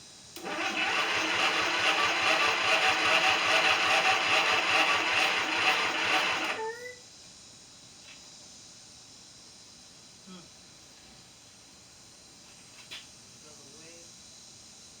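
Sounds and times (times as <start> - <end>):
engine cranking on starter: 0.4 - 6.8.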